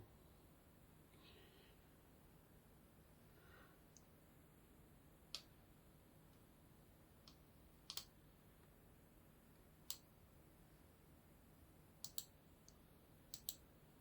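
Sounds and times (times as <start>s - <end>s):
faint low hum: 0.0s - 14.0s
computer mouse clicks: 7.2s - 8.1s, 9.9s - 10.1s, 12.0s - 13.6s.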